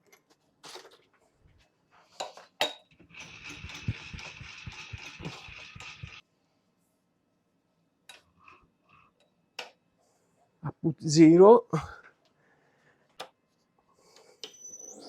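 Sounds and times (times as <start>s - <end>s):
milling machine whirring: 3.0s - 6.2s.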